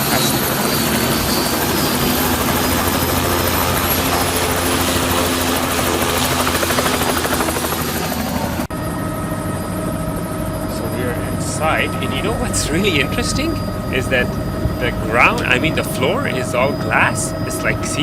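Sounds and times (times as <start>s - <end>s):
helicopter engine and rotor: 0.0s - 18.0s.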